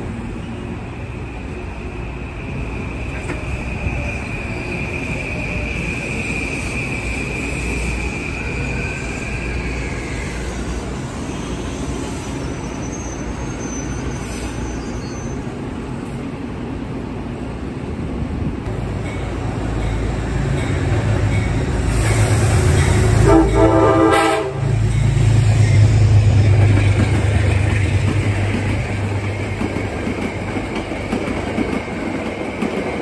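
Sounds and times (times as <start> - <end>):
train wheels rumbling on rail: 0.0 - 33.0
high wheel squeal: 2.4 - 15.5.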